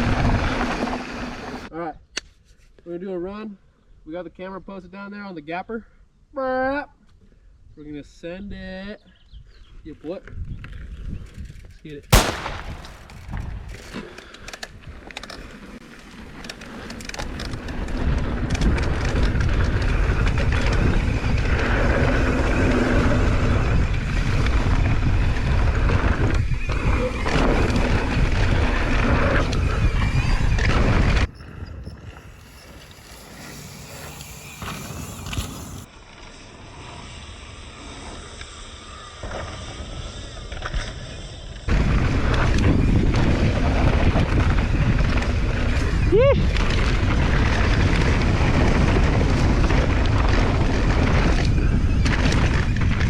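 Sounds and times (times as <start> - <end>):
bike tyres rolling on dirt: 0.0 - 1.7, 10.5 - 37.4, 41.6 - 53.0
wind on microphone: 0.0 - 1.7, 17.2 - 35.9, 41.7 - 53.0.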